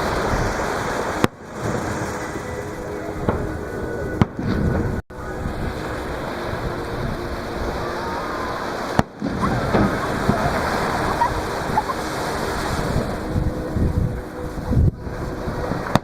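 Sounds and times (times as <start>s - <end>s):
waves breaking on beach: 0.0s - 16.0s.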